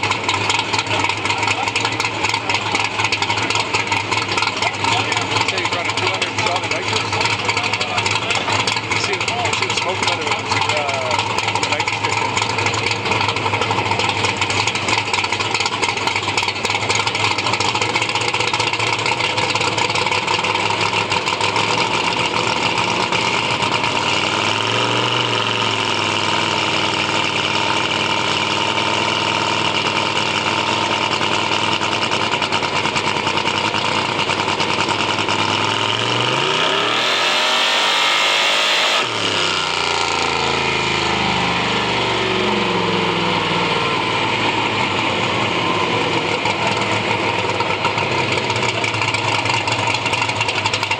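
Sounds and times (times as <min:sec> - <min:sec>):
car engine idling and revving: 0:00.0 - 0:50.9.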